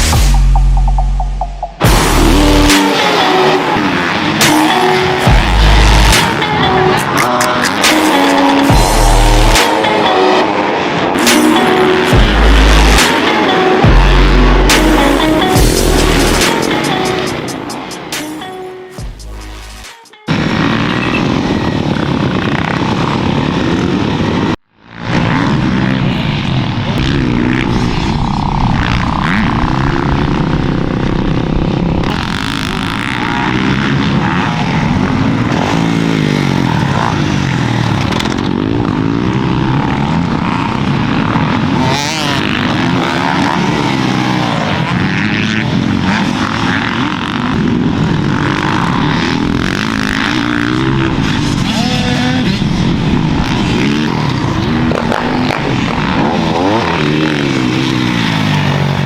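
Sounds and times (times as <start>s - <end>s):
dirt bike engines revving: 0.0s - 59.0s.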